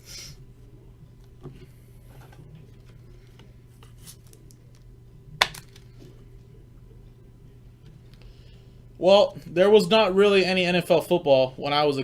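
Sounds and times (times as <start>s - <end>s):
low hum: 0.0s - 11.6s
cards and packaging rustling: 5.4s - 6.0s.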